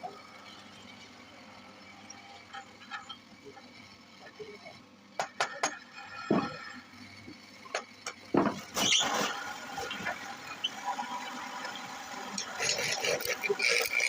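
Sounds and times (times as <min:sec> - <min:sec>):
lathe cutting wood: 0:09.5 - 0:14.0
spinning lathe whine: 0:09.5 - 0:14.0.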